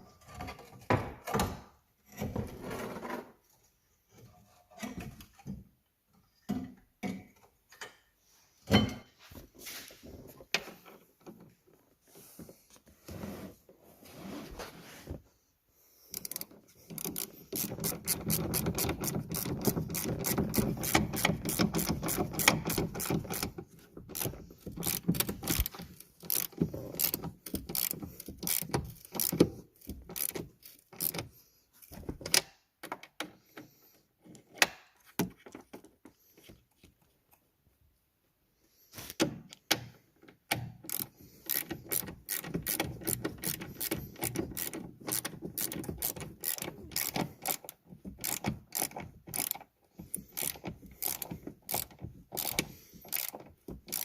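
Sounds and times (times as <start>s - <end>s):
ratchet wrench clicking: 16.1s - 23.5s, 24.1s - 31.3s, 40.8s - 54.0s.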